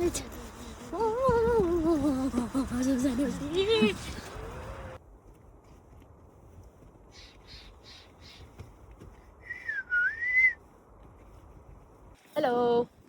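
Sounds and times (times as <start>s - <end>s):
raspy bird calls: 7.1s - 8.7s
whistled bird note: 9.4s - 10.6s.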